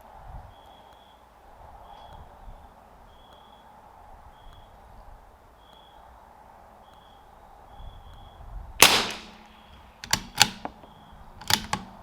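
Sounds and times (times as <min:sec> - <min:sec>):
sharp clicks: 0:08.1 - 0:12.0
rifle shot with ringing tail: 0:08.8 - 0:09.8.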